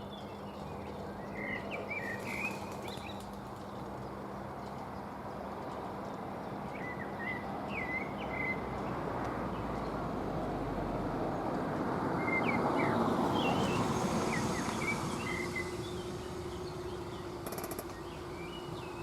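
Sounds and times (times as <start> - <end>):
train passing: 10.3 - 18.4
birds chirping: 12.2 - 19.0.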